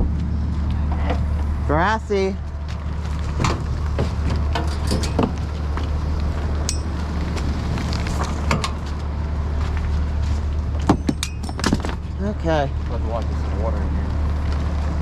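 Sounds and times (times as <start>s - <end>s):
vehicle engine idling: 0.0s - 15.0s
scrap metal clinking and knocking: 4.4s - 5.4s, 6.6s - 7.0s, 10.8s - 12.1s
sharp metallic clanks: 4.5s - 5.4s, 6.6s - 7.1s, 10.8s - 12.0s.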